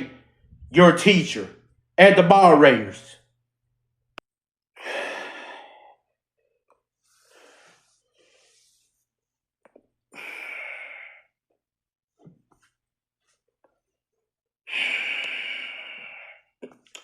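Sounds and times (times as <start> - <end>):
person breathing heavily: 4.8 - 6.1, 10.1 - 11.4, 14.7 - 16.5.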